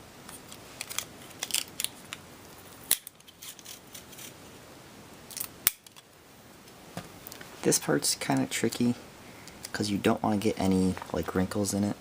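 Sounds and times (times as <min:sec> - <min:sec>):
tape crinkling and clicking: 0:00.2 - 0:04.3
sharp tape snap: 0:02.9 - 0:03.2, 0:05.3 - 0:06.0.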